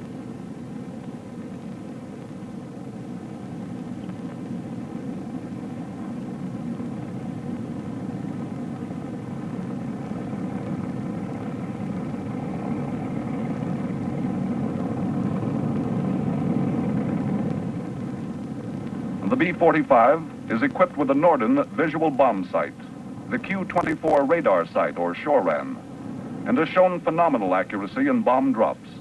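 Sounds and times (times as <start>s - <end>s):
jet engines running: 0.0s - 29.0s.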